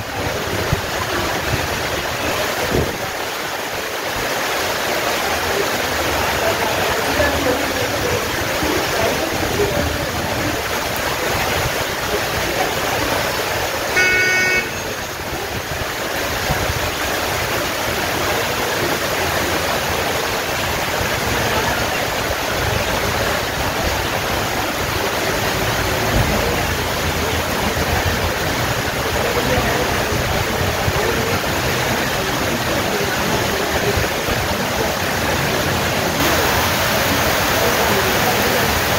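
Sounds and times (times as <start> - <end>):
steady rain hissing: 0.0 - 38.9
vehicle horn toot: 13.9 - 15.0.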